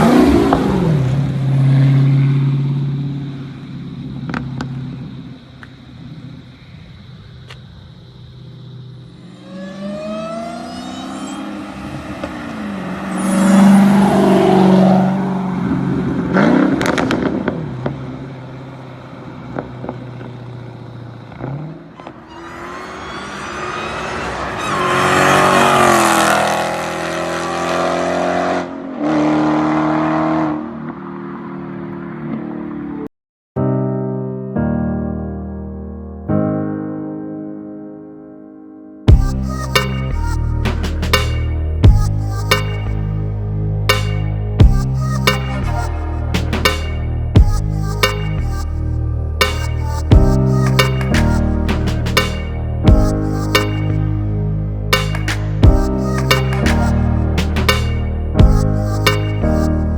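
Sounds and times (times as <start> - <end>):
car engine accelerating hard: 0.0 - 5.2, 9.2 - 33.0.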